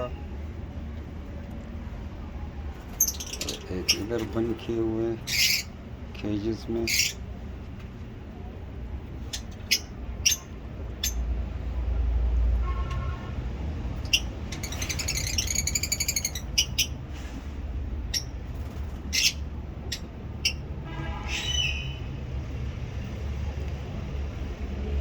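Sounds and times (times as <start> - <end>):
birds chirping: 2.2 - 7.5, 9.0 - 11.2, 14.0 - 17.1, 18.0 - 22.2
bird chattering trill: 3.0 - 4.2, 5.2 - 5.8, 9.4 - 11.2, 14.0 - 17.0.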